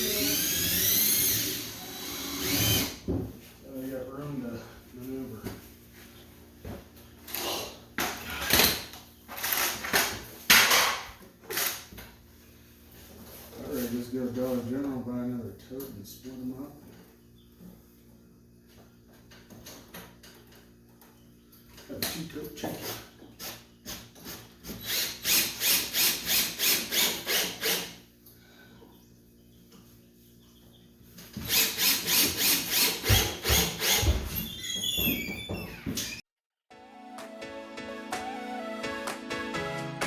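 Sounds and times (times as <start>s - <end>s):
hand saw cutting wood: 22.7s - 28.0s, 31.4s - 34.2s.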